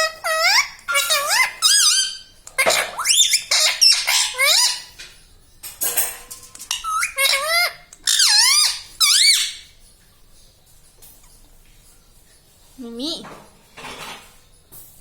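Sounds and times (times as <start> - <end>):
parrot squeaky calls: 0.0 - 5.0, 6.6 - 9.8.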